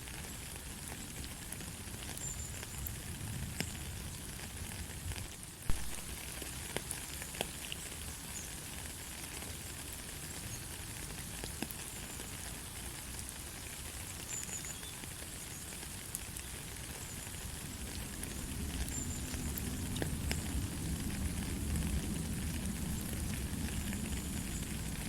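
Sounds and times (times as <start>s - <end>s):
light rain hissing: 0.0s - 25.0s
raindrops ticking: 5.2s - 25.0s.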